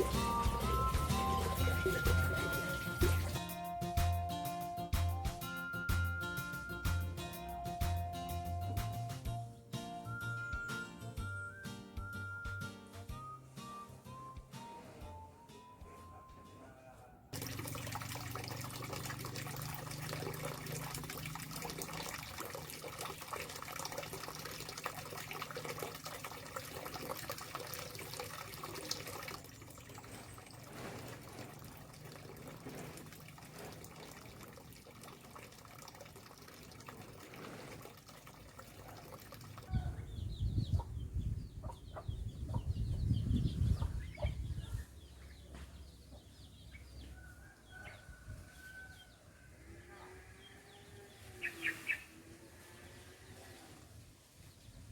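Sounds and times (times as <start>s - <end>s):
rushing water: 17.4s - 39.7s
chickens clucking: 39.7s - 44.8s
wind buffeting microphone: 39.7s - 45.0s.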